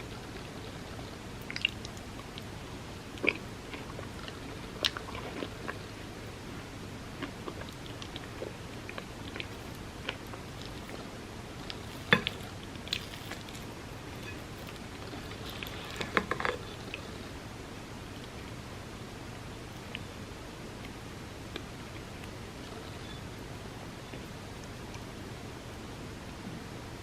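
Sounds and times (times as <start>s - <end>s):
steady hiss: 0.0s - 27.0s
wet chewing and mouth clicks: 0.2s - 2.6s, 7.2s - 17.3s.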